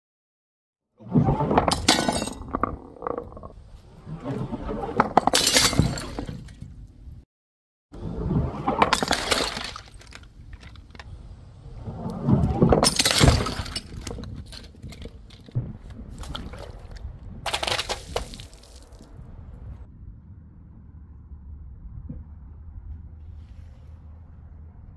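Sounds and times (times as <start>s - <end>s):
glass smashing: 1.7s - 2.4s, 8.9s - 10.2s, 12.8s - 15.0s.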